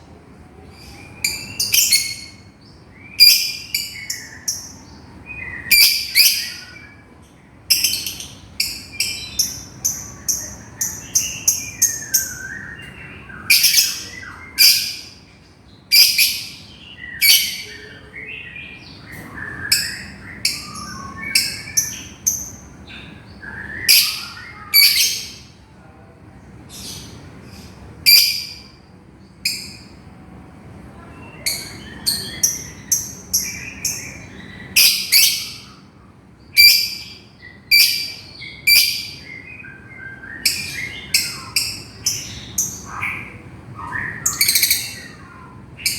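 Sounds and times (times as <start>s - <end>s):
soft chattering chirps: 0.6s - 15.3s, 31.0s - 45.9s
lovebird shrill calls: 31.4s - 35.7s, 44.1s - 45.2s.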